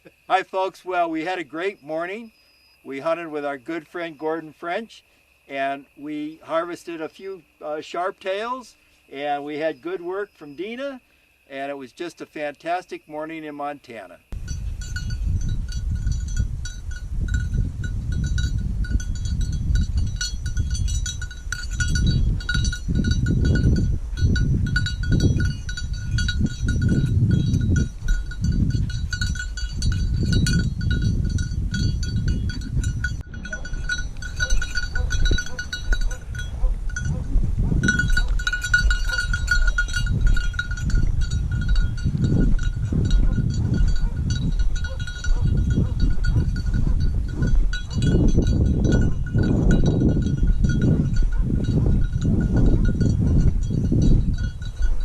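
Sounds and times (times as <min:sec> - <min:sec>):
wind rumbling on microphone: 0:14.3 - 0:55.0
bell on dog collar jingling: 0:14.4 - 0:55.0.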